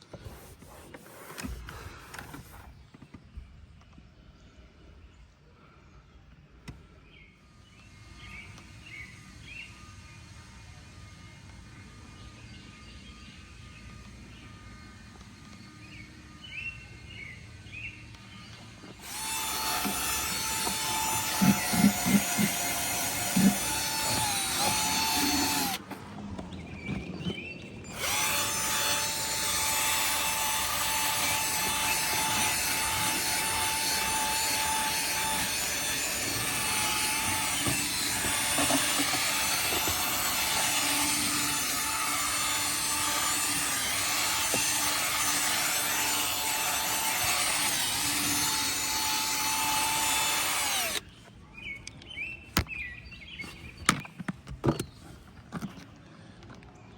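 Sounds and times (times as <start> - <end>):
small electric motor whining: 7.7 - 25.9, 27.9 - 51.1.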